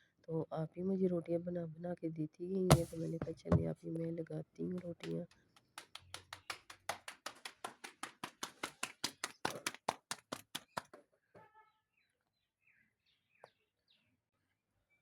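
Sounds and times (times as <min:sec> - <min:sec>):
hands slapping dough: 0:02.7 - 0:03.7.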